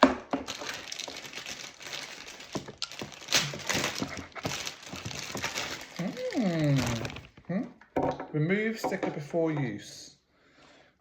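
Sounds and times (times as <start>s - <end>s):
packaging rustling and crinkling: 0.0s - 7.5s.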